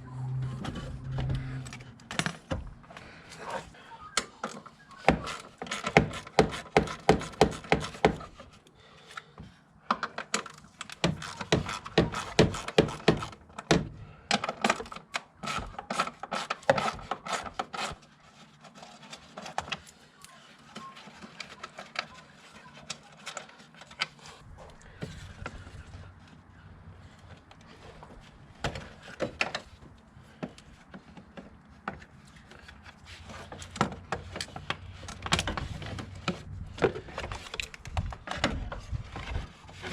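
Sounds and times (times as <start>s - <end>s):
clicks and knocks of tools: 9.9s - 17.9s.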